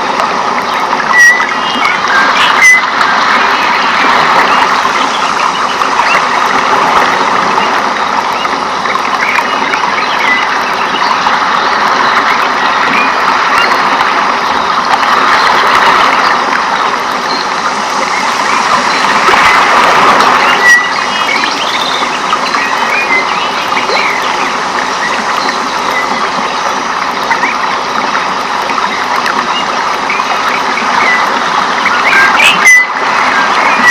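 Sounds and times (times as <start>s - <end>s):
dense rainforest wash: 0.0s - 33.9s
chirps and calls of animals: 0.6s - 6.4s, 7.6s - 13.8s, 20.3s - 26.7s, 28.8s - 33.9s
sharp whistle: 1.1s - 2.9s.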